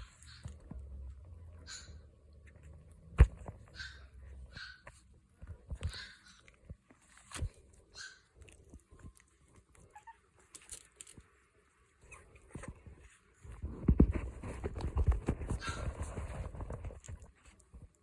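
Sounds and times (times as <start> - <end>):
puppies squeaking: 1.5 - 2.4, 3.6 - 5.1, 5.8 - 7.1, 7.8 - 8.5, 9.8 - 10.5.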